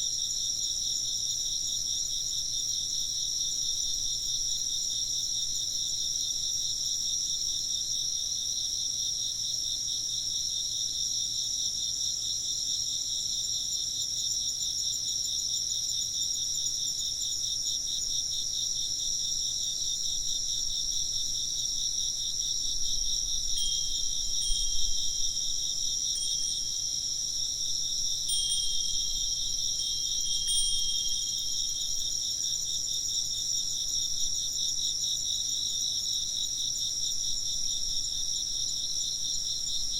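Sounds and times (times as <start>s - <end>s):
insects chirping: 0.0s - 39.9s
wind bell ringing: 23.5s - 27.3s, 28.2s - 32.2s.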